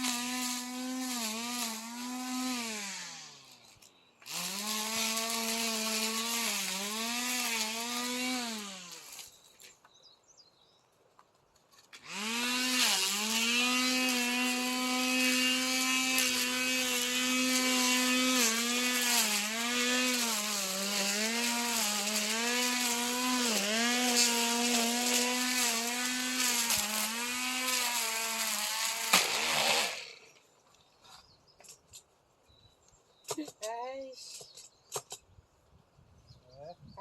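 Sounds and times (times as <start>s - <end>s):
brush cutter engine running: 0.0s - 9.3s, 12.0s - 30.4s
sharp crack: 29.1s - 30.0s.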